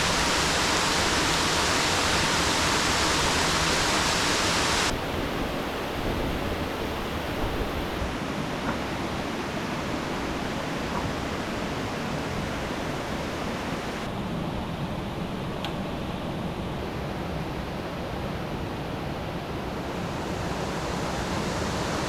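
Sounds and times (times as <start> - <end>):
flowing river water: 0.0 - 14.1, 18.6 - 22.0.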